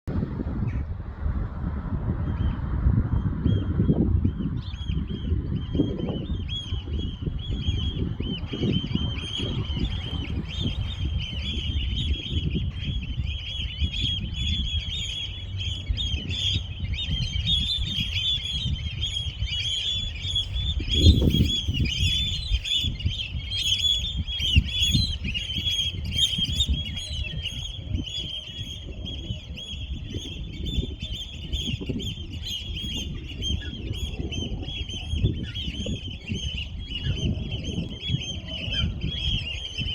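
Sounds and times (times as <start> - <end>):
birds chirping: 4.3 - 39.9.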